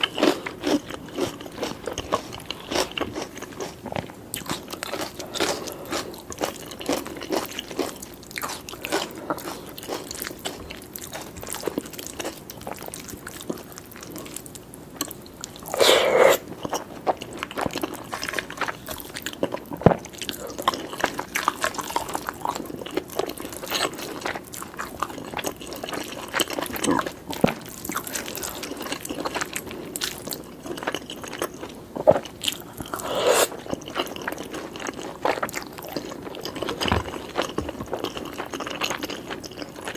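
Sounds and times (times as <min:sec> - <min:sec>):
person chewing crunchy food: 0:00.0 - 0:39.9
loud mouth sounds: 0:15.7 - 0:16.5, 0:32.9 - 0:33.6.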